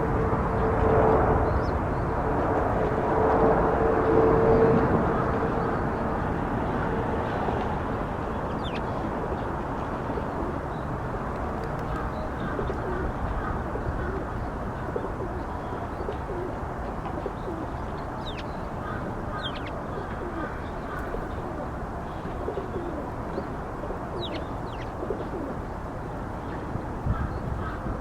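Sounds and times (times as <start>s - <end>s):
sparrows chirping: 8.4s - 8.9s, 17.2s - 21.4s, 22.1s - 25.0s.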